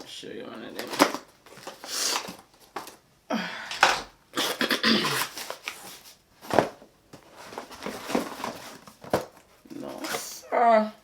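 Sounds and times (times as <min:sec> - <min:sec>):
woman making non-word sounds: 0:10.3 - 0:11.0.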